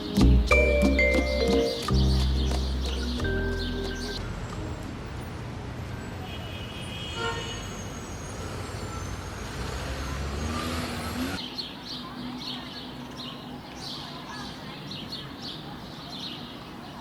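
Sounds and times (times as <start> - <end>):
bird chirps: 0.0 - 4.3
traffic rumble: 0.0 - 17.0
car horn toot: 6.3 - 7.8.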